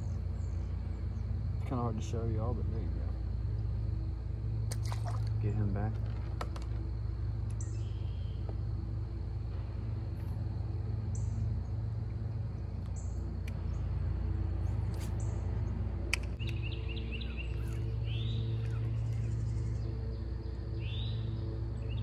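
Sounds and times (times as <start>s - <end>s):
steady low rumble: 0.0s - 22.0s
birds chirping: 7.5s - 8.7s, 12.4s - 22.0s.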